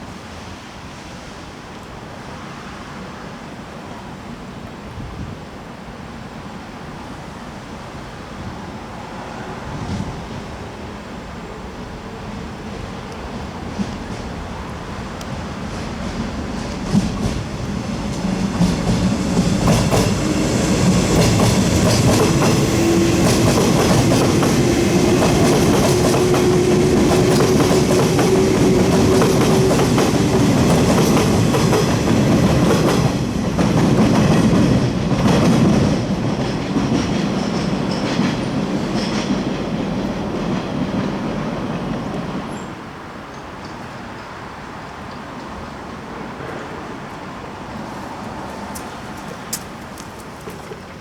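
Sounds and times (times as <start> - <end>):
train running past: 0.0 - 51.0
wheels clicking over rail joints: 13.1 - 44.4, 47.8 - 51.0.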